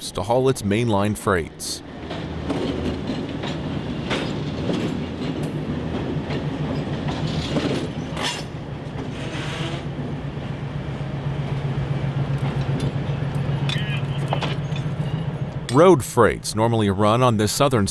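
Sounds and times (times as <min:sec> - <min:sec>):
diesel locomotive engines humming: 0:00.0 - 0:17.9
train wheels clicking over rail joints: 0:01.9 - 0:16.0.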